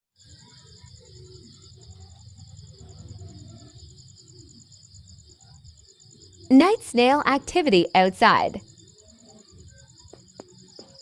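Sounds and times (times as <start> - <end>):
insects trilling: 0.2 - 11.0.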